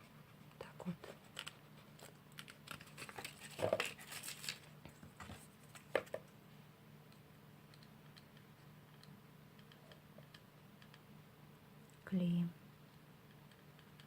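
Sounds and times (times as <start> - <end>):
paper and cardboard rustling: 1.1 - 6.3.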